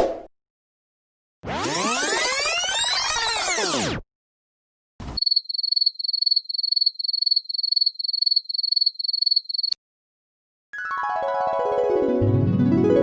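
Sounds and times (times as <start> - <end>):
crickets chirping: 5.2 - 9.8.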